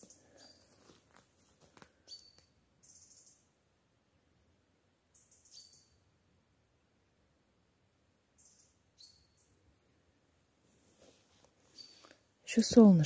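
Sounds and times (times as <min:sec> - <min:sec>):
faint high bird chirps: 0:00.0 - 0:00.7, 0:02.0 - 0:03.6, 0:04.3 - 0:06.1, 0:08.4 - 0:10.0, 0:11.7 - 0:12.2.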